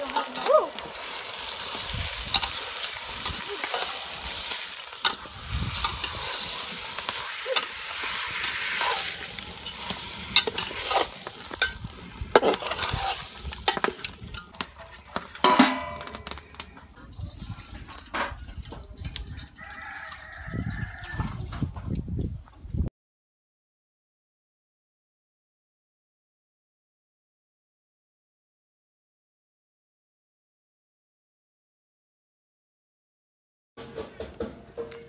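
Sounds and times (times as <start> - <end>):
metal spatula scraping pot: 0.0 - 19.6
chicken sizzling in oil: 0.0 - 21.8.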